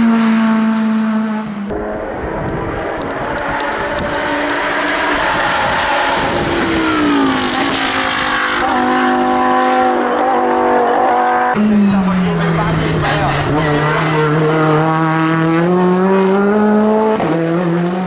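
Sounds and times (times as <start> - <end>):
race car engine at high revs: 0.0 - 18.0.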